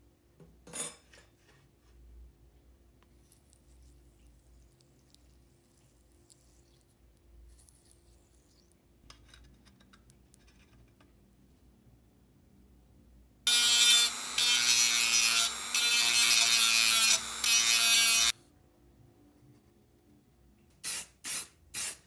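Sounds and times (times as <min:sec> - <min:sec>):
handheld power tool motor: 0:13.5 - 0:18.3.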